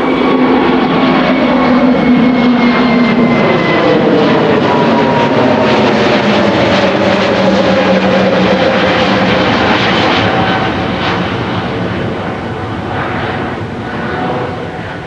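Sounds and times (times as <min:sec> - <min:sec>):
jet plane rumbling overhead: 0:00.0 - 0:15.0.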